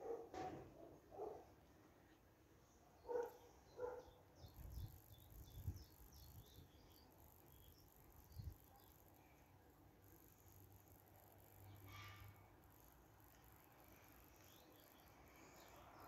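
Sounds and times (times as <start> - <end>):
faint birdsong: 0.0 - 16.0.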